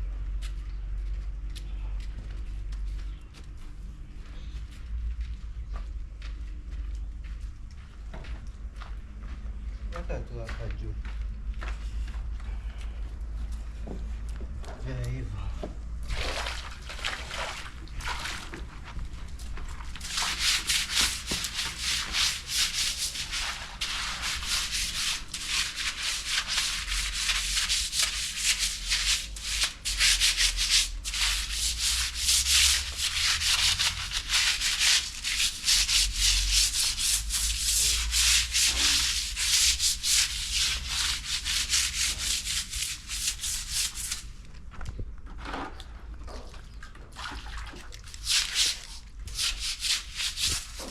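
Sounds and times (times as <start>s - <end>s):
scraping and brushing strokes: 17.1s - 44.4s, 48.1s - 50.9s.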